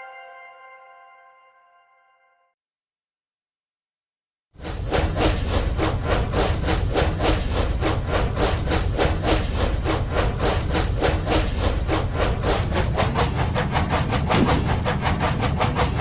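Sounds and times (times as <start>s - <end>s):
train chugging: 4.6s - 16.0s.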